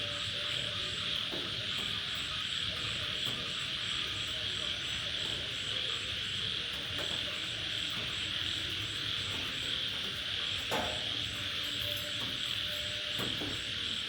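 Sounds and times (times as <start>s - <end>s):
continuous high hiss: 0.0s - 14.0s
crickets chirping: 0.0s - 14.0s.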